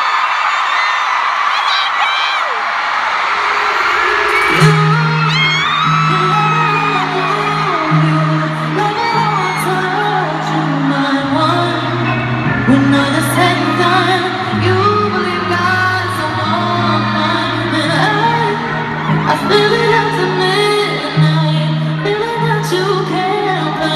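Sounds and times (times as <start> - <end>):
audience whooping: 0.0 - 11.0
live pop concert music: 0.0 - 23.9
singing with gliding vocal runs: 3.4 - 23.9.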